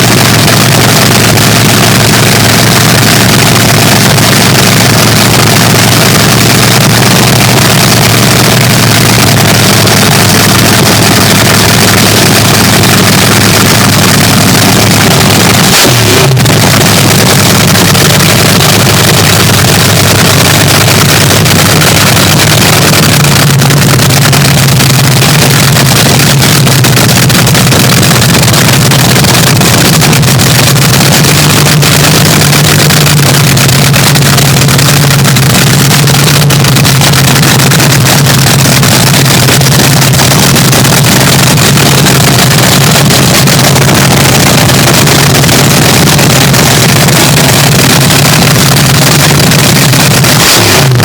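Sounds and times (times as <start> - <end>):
dragster engine crackling at idle: 0.0 - 51.0.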